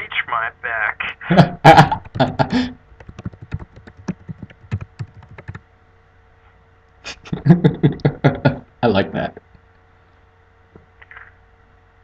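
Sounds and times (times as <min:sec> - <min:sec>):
computer keyboard typing: 0:03.0 - 0:05.6.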